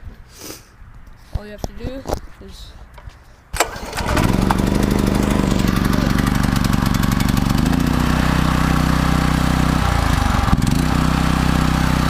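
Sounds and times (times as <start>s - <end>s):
small engine running: 3.6s - 12.0s.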